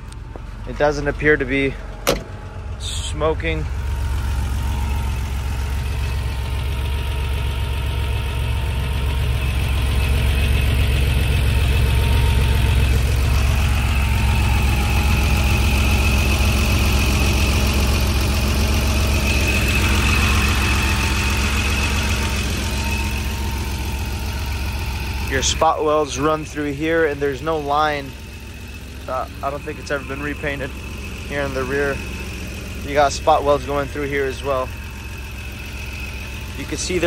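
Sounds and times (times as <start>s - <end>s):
car engine idling: 0.0s - 37.0s
car engine starting: 0.0s - 37.0s.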